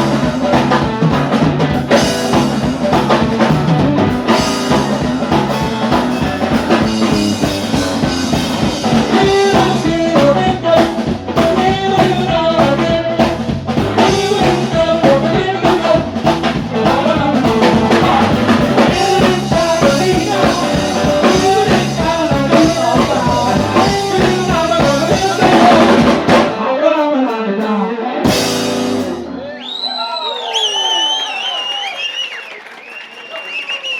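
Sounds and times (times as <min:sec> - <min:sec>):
drum kit: 0:00.0 - 0:29.4
bending lead guitar line: 0:00.0 - 0:29.6
blues band playing: 0:00.0 - 0:29.6.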